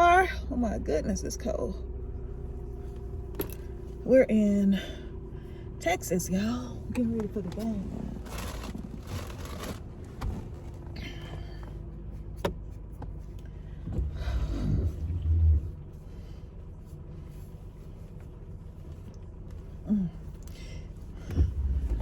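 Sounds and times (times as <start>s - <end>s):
car heater humming: 0.0s - 22.0s
low bumps: 12.4s - 16.2s, 21.1s - 22.0s.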